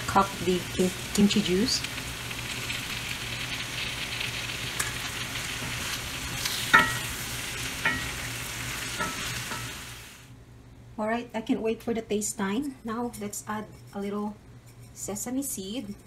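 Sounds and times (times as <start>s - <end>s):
food sizzling in a skillet: 0.0s - 10.3s.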